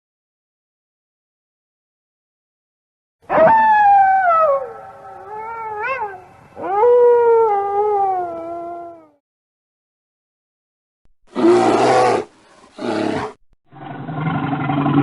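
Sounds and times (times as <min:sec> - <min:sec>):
animal howling: 0:03.3 - 0:09.2.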